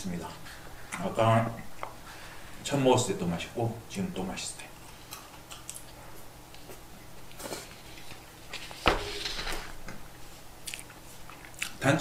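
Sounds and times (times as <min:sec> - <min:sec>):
man chewing food: 0:10.6 - 0:11.8.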